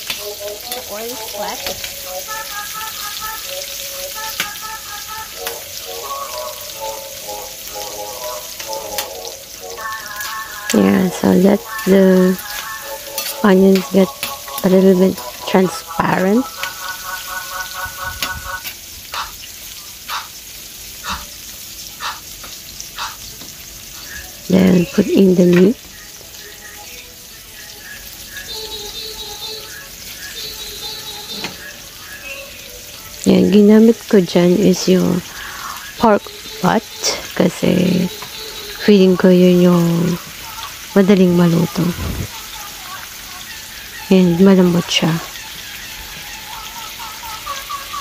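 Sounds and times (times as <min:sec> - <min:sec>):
onions sizzling in hot oil: 0:00.0 - 0:48.0
melody of short notes: 0:01.6 - 0:18.6.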